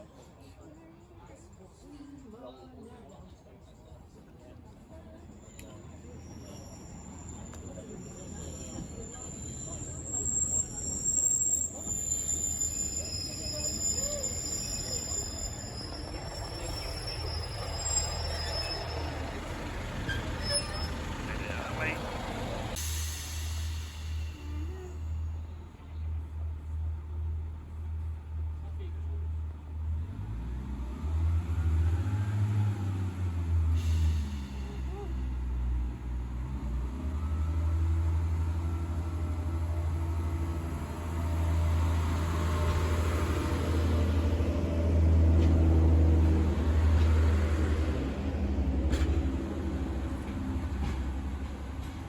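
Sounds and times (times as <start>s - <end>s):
train rumbling: 5.4s - 52.0s
high-pitched squealing: 8.2s - 22.0s
diesel engine running: 13.8s - 25.7s.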